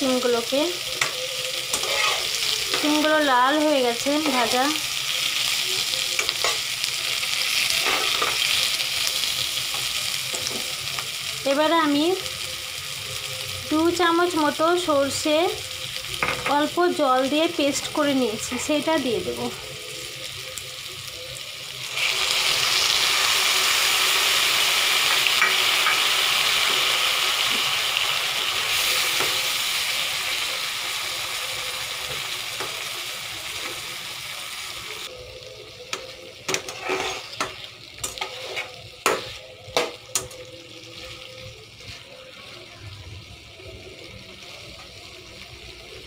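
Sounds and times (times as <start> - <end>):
paste sizzling in hot oil: 0.0 - 46.0
metal spatula scraping pan: 1.7 - 3.0, 7.7 - 8.6, 36.5 - 39.4.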